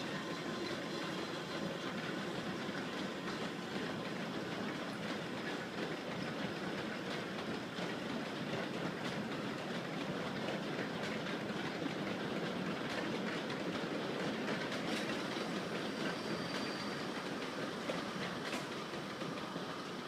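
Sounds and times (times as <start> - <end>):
train rumbling and rattling: 0.0 - 20.0
train wheels clicking: 0.0 - 20.0.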